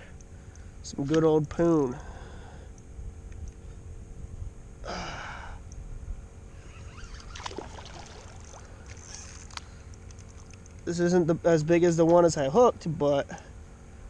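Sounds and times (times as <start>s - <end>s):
low steady rumble: 0.0s - 14.0s
person exhaling breathily: 4.8s - 5.6s
small clicks and taps: 9.5s - 10.9s.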